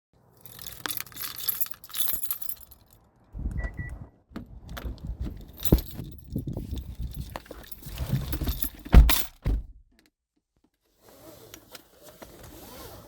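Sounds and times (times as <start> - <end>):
keys jangling: 0.4 - 3.1, 5.2 - 9.5
low rumble: 3.2 - 7.4
short high beeps: 3.6 - 4.0.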